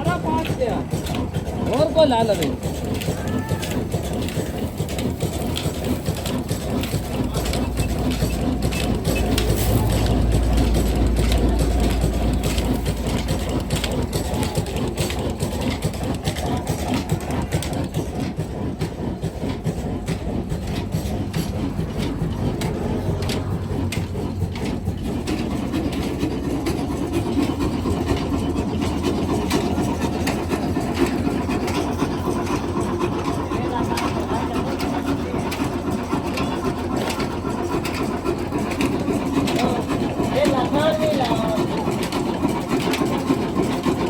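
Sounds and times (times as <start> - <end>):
diesel engine clattering: 0.0 - 44.0.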